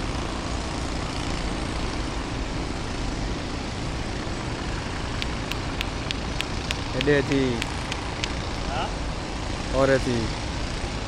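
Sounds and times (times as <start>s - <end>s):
sharp clicks: 5.2s - 8.7s.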